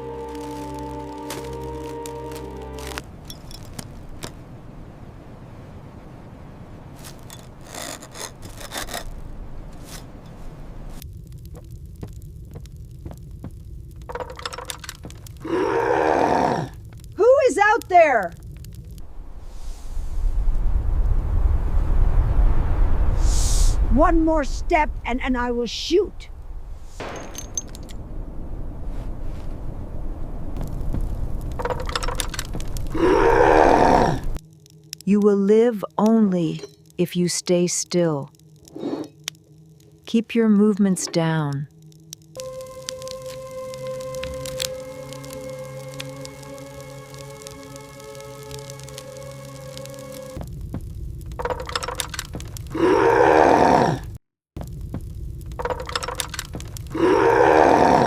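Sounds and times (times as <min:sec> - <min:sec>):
blizzard wind rumbling: 0:00.0 - 0:40.7, 0:41.6 - 0:58.0
crackling clicks: 0:00.1 - 0:04.4, 0:07.0 - 0:19.1, 0:27.0 - 0:28.1, 0:30.5 - 0:37.0, 0:37.8 - 0:53.0, 0:54.6 - 0:57.4
low rumble: 0:10.3 - 0:15.7, 0:18.3 - 0:34.4
sharp clicks: 0:51.3 - 0:52.7, 0:55.5 - 0:56.9.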